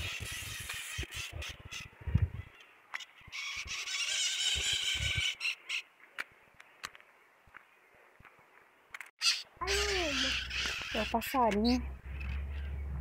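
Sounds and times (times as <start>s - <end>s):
wind rumble: 0.0s - 3.7s, 10.3s - 13.0s
birds squawking and chattering: 0.0s - 6.3s, 9.2s - 13.0s.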